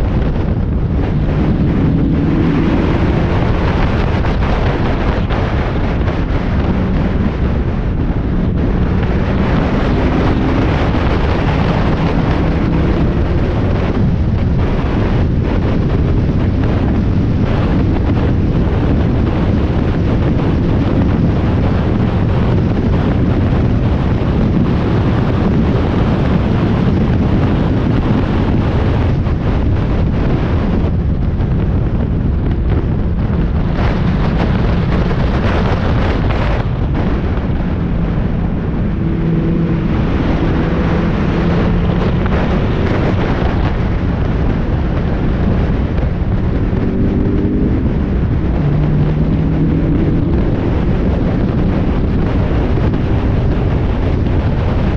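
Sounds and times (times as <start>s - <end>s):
car engine running: 0.0s - 54.9s
wind buffeting microphone: 0.0s - 54.9s.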